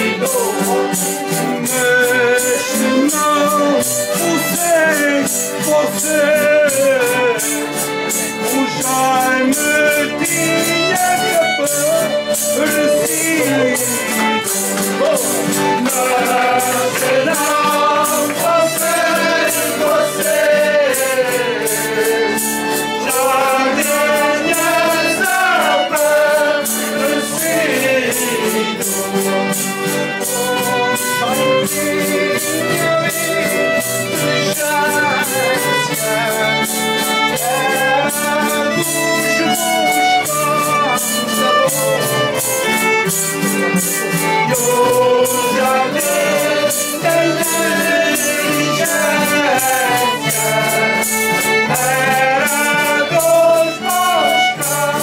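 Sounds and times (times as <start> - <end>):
group singing in chorus: 0.0 - 55.0
instrumental accompaniment: 0.0 - 55.0
steady percussion beat: 0.0 - 55.0.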